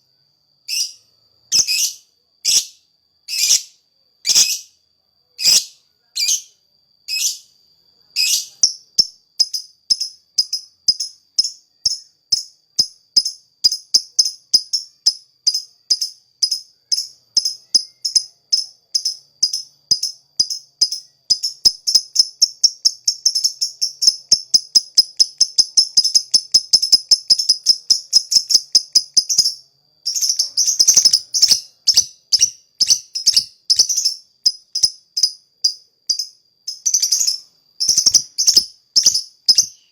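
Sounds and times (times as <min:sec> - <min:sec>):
bird singing rattling notes: 0:30.1 - 0:35.0, 0:36.2 - 0:39.9.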